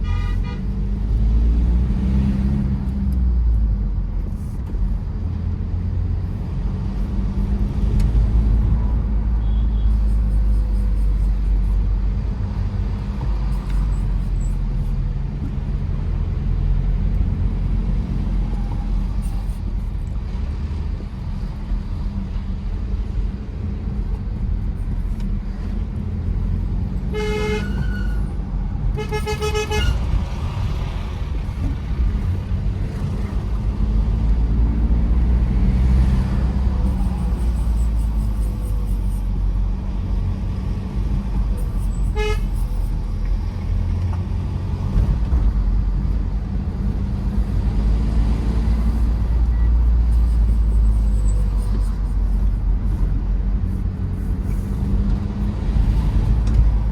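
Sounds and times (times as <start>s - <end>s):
car horn honking: 0.0s - 0.8s, 27.1s - 28.3s, 29.0s - 30.2s, 42.1s - 42.6s
car engine and tyres droning: 0.0s - 56.9s.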